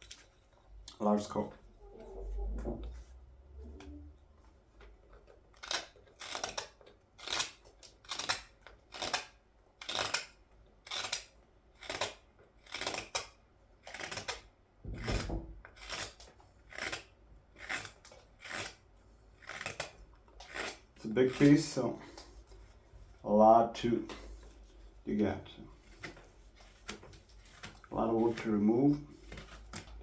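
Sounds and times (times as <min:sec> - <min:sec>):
carving blade scraping wood: 0:05.2 - 0:22.8, 0:25.8 - 0:30.0.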